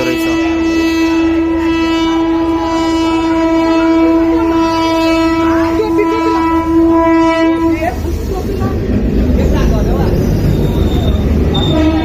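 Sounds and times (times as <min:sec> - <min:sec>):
train horn blast: 0:00.0 - 0:08.2, 0:10.9 - 0:12.0
train rumbling: 0:00.0 - 0:12.0.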